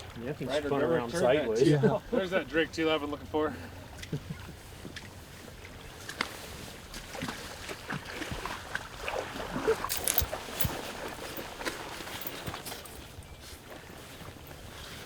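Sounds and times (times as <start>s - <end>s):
water sloshing and splashing: 3.8s - 15.0s.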